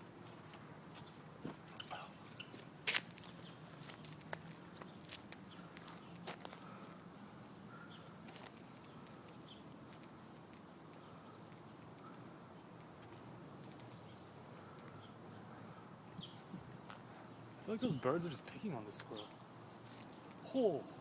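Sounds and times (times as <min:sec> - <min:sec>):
low background noise: 0:00.0 - 0:21.0
faint bird chirps: 0:01.6 - 0:02.7.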